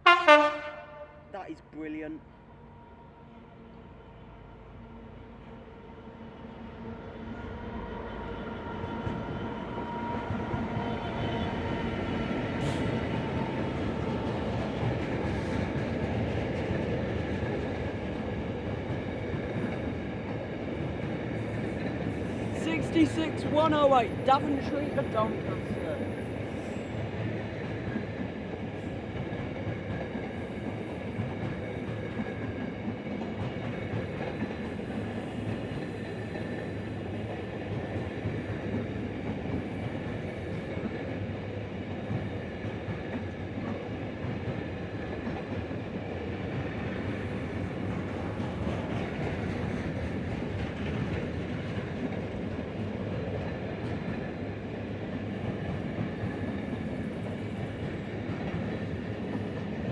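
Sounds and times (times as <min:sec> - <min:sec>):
freight train wagons rumbling: 0:10.4 - 0:41.2, 0:42.0 - 0:59.9.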